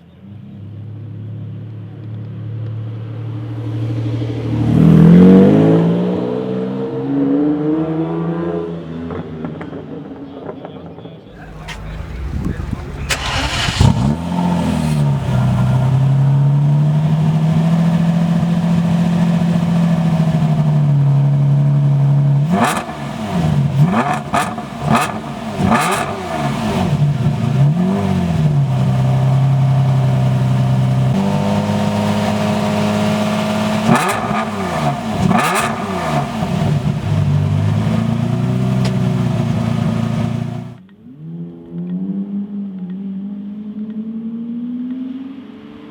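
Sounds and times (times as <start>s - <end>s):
car engine idling: 11.4s - 40.8s
engine revving throttle blips: 11.4s - 40.8s.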